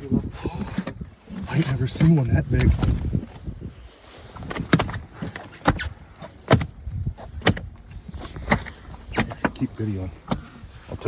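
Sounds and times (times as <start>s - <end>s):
knocks and bumps on boat: 4.4s - 11.0s.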